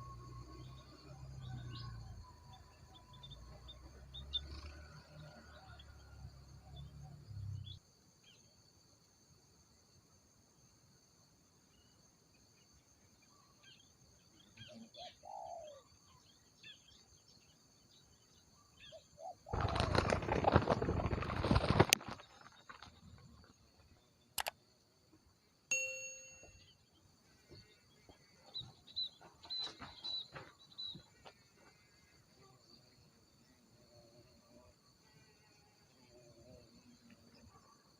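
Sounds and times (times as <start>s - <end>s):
faint bird calls: 14.4s - 16.8s
dove wings flapping: 19.5s - 23.6s
sharp clicks: 24.4s - 24.6s
metallic ding: 25.7s - 26.7s.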